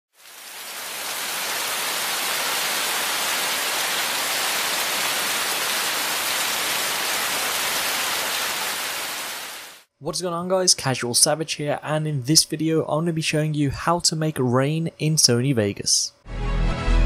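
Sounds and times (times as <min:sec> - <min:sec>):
steady rain falling: 0:00.1 - 0:09.9.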